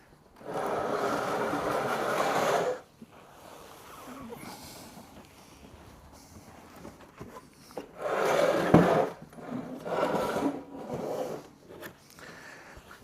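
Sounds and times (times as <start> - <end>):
fabric scraping over wooden frame: 0.4 - 4.2, 8.0 - 11.6.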